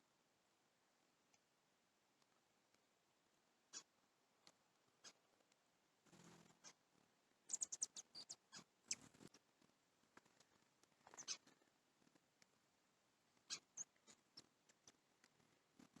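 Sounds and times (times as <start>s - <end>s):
small birds chipping: 3.7s - 9.5s, 10.2s - 12.5s, 13.3s - 16.0s.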